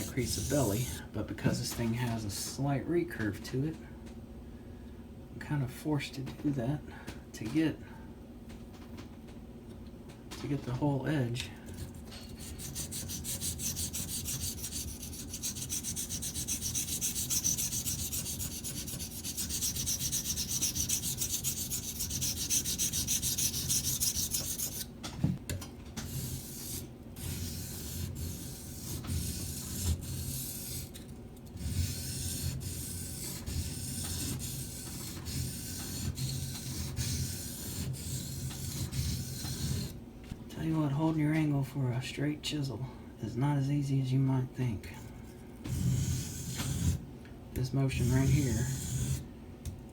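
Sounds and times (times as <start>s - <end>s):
knife blade scraping on whetstone: 0.0s - 1.0s, 11.8s - 24.9s, 26.0s - 40.0s, 45.7s - 47.0s, 47.9s - 49.2s.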